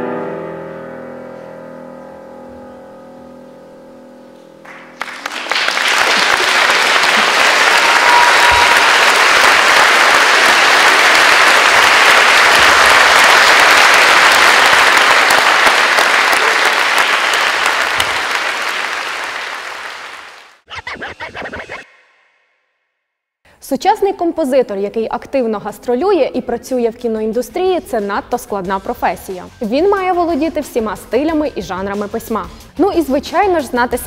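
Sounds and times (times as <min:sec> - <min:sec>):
audience applauding: 0:04.6 - 0:20.6.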